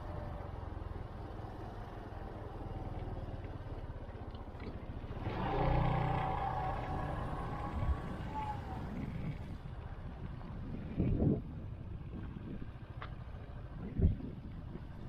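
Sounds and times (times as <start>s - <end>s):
wind noise on microphone: 7.4s - 15.0s.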